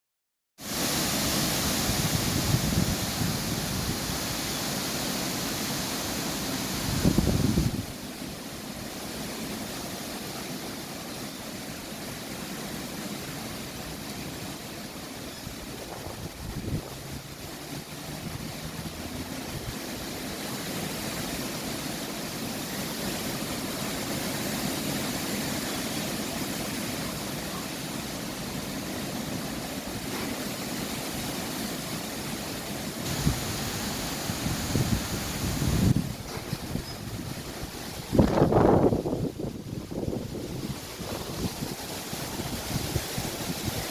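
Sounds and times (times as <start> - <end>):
strong wind blowing: 0.9 - 4.5, 6.7 - 8.0, 15.4 - 20.2, 33.0 - 43.9.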